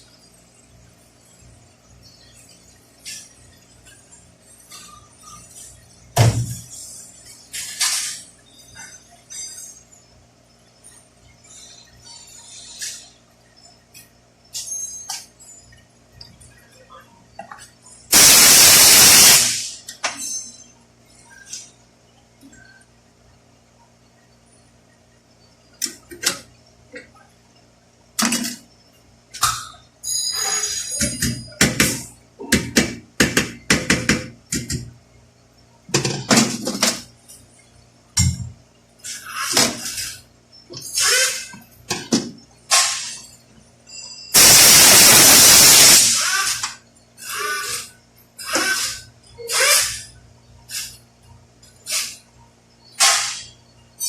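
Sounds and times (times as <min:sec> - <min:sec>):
compressed air blast: 0:18.1 - 0:19.8, 0:44.4 - 0:46.6.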